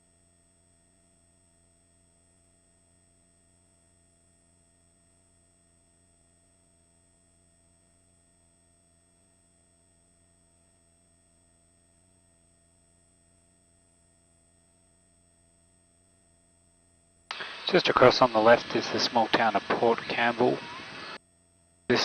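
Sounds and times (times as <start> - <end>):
faint electrical hum and whine: 17.3 - 21.2.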